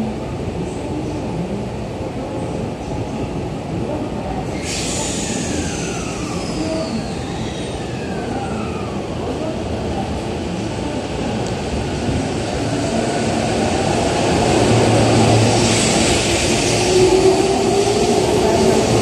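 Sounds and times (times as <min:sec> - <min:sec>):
air hiss: 0:04.5 - 0:07.0.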